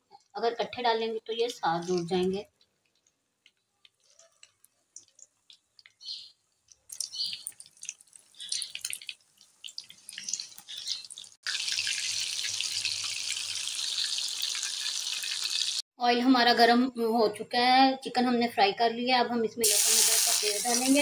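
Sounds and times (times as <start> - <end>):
chicken deep-frying in oil: 3.4 - 15.8, 19.6 - 21.0.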